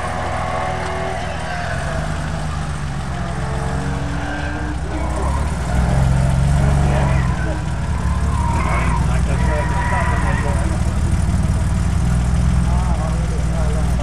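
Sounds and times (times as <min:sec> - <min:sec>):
distant car engine revving: 0:00.0 - 0:14.0.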